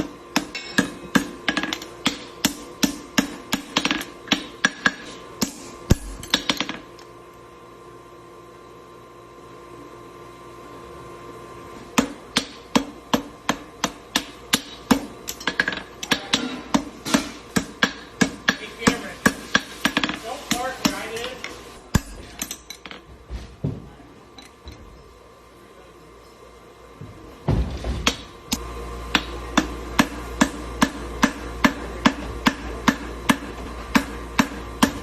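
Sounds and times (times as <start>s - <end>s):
steady hum: 0.0s - 35.0s
hammer ringing on anvil: 0.4s - 1.3s.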